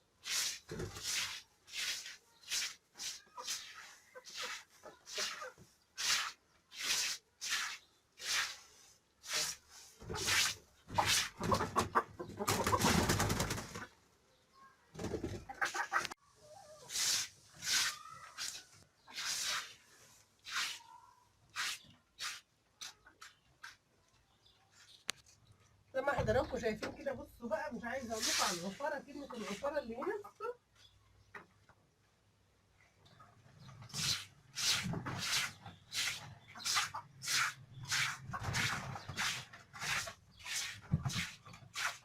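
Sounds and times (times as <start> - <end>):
broom sweeping: 0.2 - 11.4, 16.8 - 23.3, 27.9 - 29.8, 33.9 - 42.0
chickens clucking: 3.0 - 5.8, 10.0 - 14.0, 15.0 - 17.0, 28.1 - 30.6, 33.0 - 42.0.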